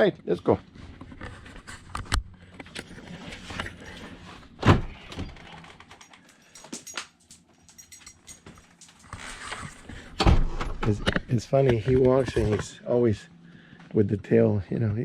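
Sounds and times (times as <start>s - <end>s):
door opening: 4.6s - 6.1s.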